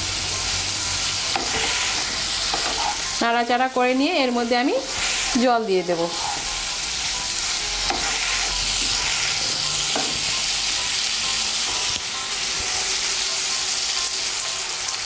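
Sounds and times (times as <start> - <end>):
vegetables sizzling in oil: 0.0 - 15.0
spatula scraping a pan: 1.3 - 3.2, 4.8 - 6.8, 7.4 - 10.4.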